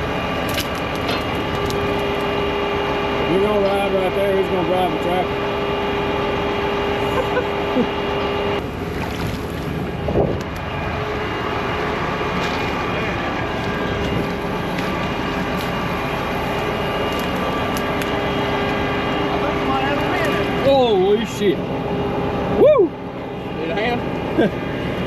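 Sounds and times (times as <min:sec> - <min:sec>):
steady whine: 0:00.0 - 0:25.0
tractor diesel engine running: 0:00.0 - 0:25.0
wind on microphone: 0:09.2 - 0:10.6.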